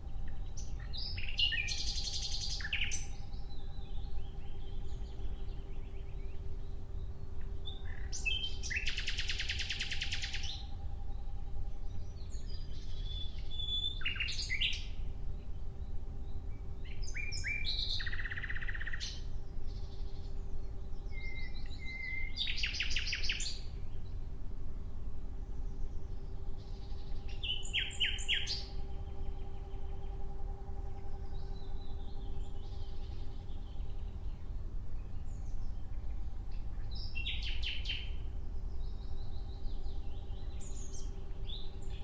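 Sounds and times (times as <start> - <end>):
bird singing trilled phrases: 0.0 - 24.2, 25.6 - 30.3, 30.9 - 42.0
faint steady hum: 0.0 - 42.0.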